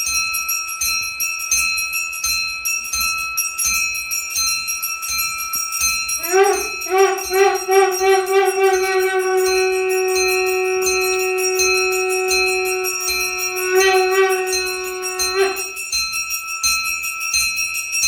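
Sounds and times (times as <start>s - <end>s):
hand bell ringing: 5.0s - 18.0s
conch shell blown warbling: 6.2s - 15.9s.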